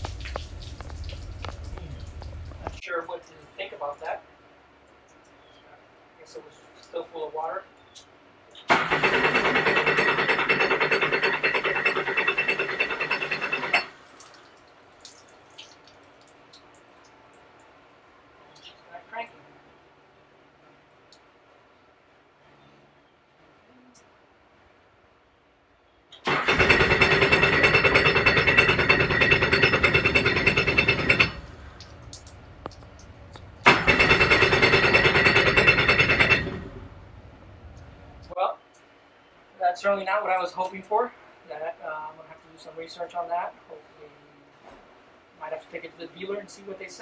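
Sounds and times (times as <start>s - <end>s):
jet ski engine starter cranking: 8.7s - 13.9s, 26.2s - 31.8s, 32.6s - 37.2s.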